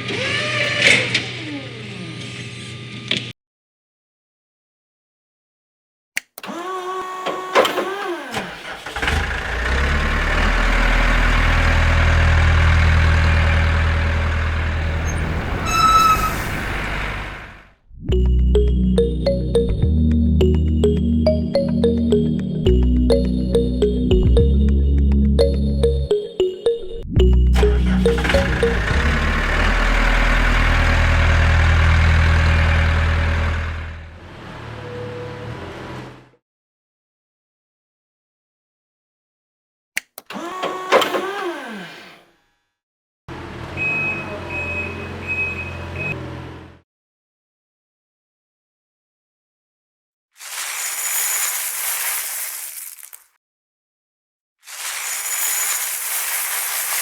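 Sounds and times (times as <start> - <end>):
engine cranking and running: 6.4 - 17.6, 27.2 - 34.2, 40.0 - 42.3
short high-pitched tone: 25.4 - 30.0.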